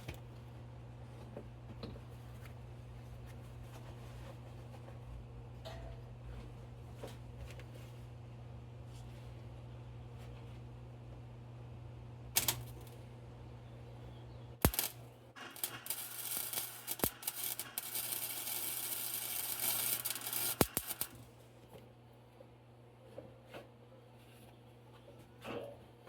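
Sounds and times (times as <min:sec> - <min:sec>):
welder humming: 0:12.4 - 0:12.9, 0:14.6 - 0:21.4
welding arc crackling: 0:12.4 - 0:12.9, 0:14.6 - 0:21.3.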